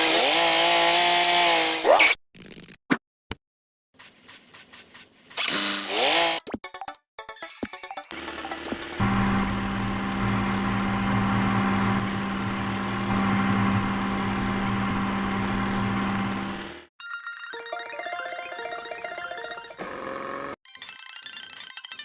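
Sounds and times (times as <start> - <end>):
small electric motor humming: 8.9 - 16.9.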